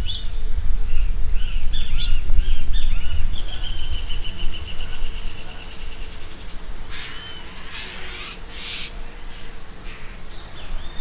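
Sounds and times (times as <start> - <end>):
small birds chirping: 0.0 - 11.0
bird trilling rapidly: 6.8 - 9.6.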